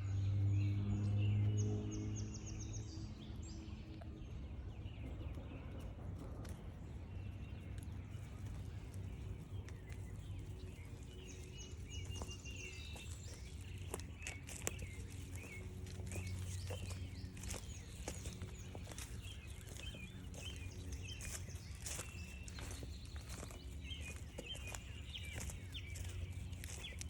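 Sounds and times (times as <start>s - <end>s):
birds calling and trilling: 0.0s - 27.0s
steady low rumble: 0.0s - 27.0s
footsteps on forest trail: 7.5s - 27.0s.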